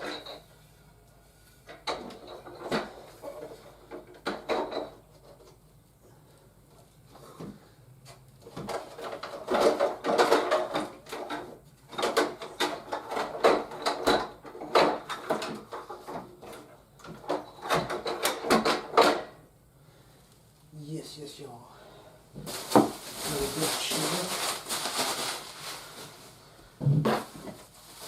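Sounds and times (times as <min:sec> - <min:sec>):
plastic toy parts clicking and knocking: 0:08.5 - 0:19.2
packaging rustling: 0:22.4 - 0:28.0.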